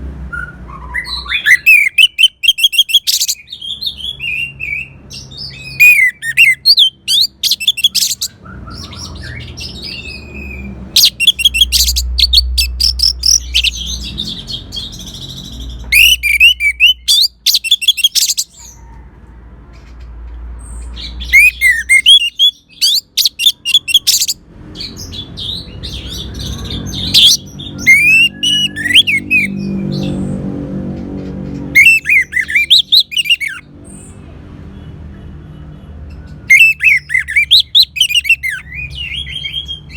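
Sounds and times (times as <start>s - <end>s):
thrush singing: 5.6s - 18.6s, 21.2s - 24.4s.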